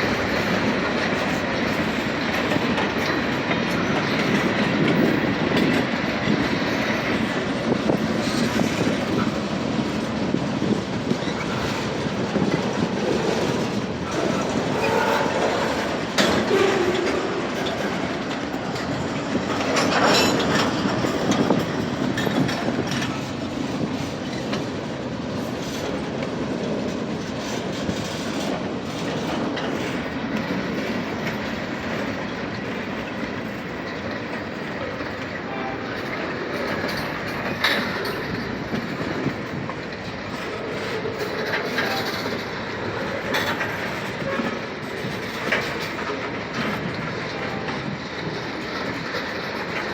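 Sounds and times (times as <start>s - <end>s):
train wheels clacking on rails: 0.0s - 49.9s
metallic squeal: 14.2s - 17.9s.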